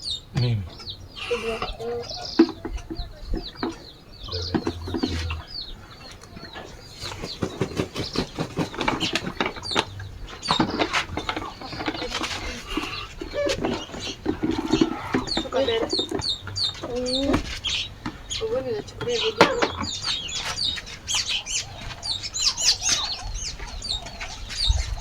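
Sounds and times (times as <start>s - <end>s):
chicken clucking: 0.0s - 25.0s
chicken flapping wings: 7.0s - 9.6s.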